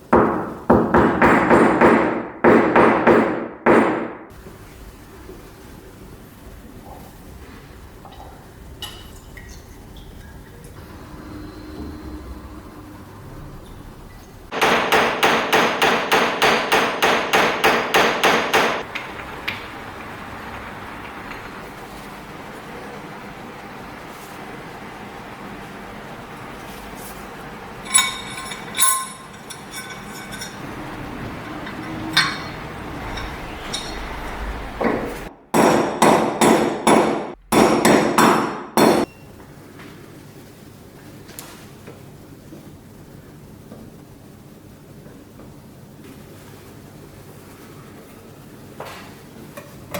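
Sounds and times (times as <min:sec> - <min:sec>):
light metallic clinks: 0:27.8 - 0:34.4
hammer blows: 0:27.8 - 0:39.1.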